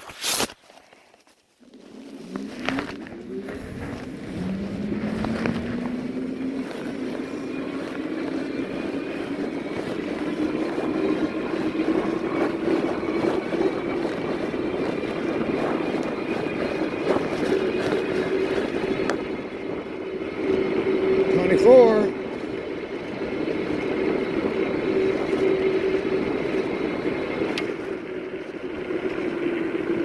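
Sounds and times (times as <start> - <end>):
wind: 0.0 - 30.0
tire road noise: 0.3 - 30.0
electric bike motor whining: 1.6 - 30.0.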